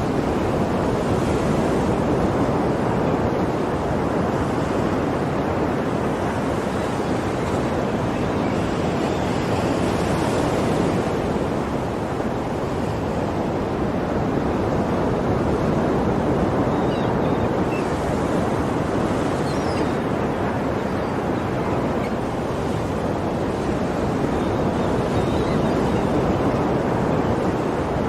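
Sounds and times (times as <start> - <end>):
ocean waves breaking on shore: 0.0 - 28.0.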